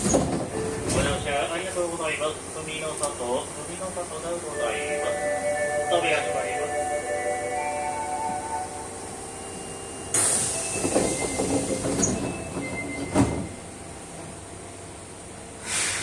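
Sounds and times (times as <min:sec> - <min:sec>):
sliding doors thumping shut: 0:00.0 - 0:01.3, 0:10.2 - 0:13.6
door hiss: 0:10.1 - 0:10.7, 0:15.6 - 0:16.0.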